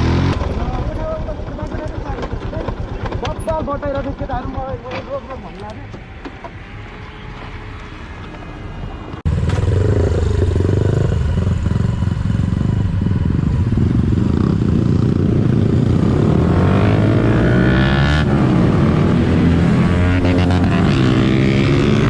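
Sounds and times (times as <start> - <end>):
motorcycle engine running: 0.0 - 5.4, 9.3 - 17.6
road noise: 0.0 - 22.0.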